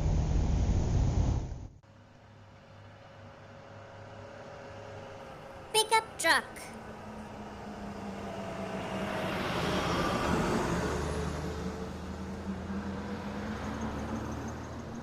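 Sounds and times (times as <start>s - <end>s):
pickup truck driving past: 7.0s - 15.0s.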